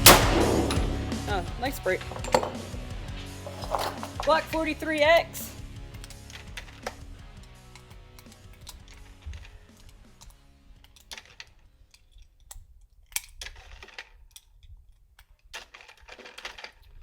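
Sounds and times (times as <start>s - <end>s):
faint background music: 0.0s - 12.2s.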